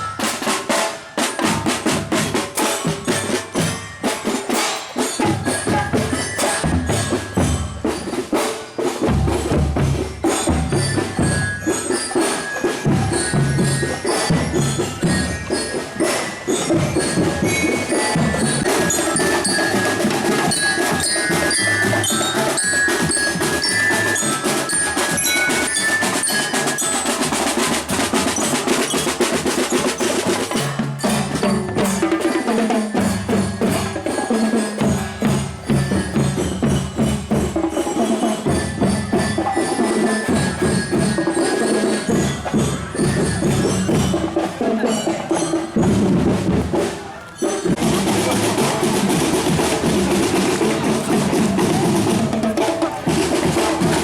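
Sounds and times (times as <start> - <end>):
bell-like mallet notes: 0.0 - 54.0
drums and percussion: 0.0 - 54.0.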